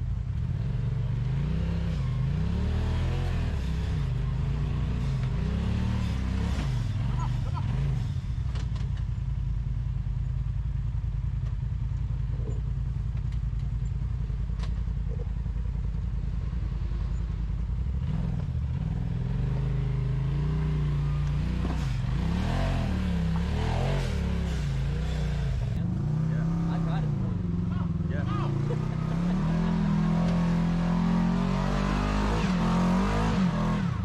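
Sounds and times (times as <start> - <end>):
engine idling and revving: 0.0 - 34.0.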